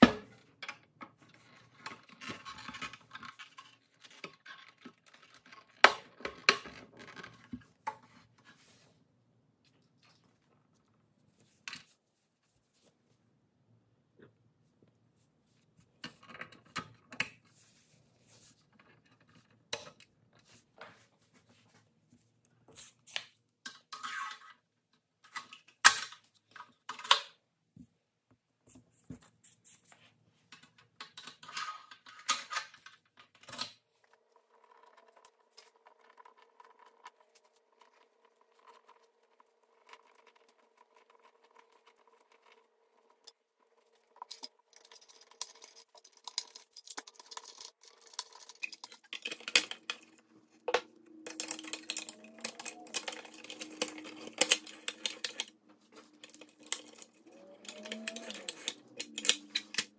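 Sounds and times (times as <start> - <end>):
plastic and metal parts clicking: 34.4 - 59.9.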